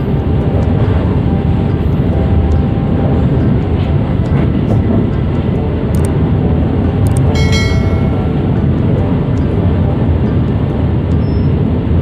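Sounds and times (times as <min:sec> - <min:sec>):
train rumble from inside coach: 0:00.0 - 0:12.0
wheels clicking on track: 0:00.0 - 0:12.0
high ringing tone: 0:07.3 - 0:08.7.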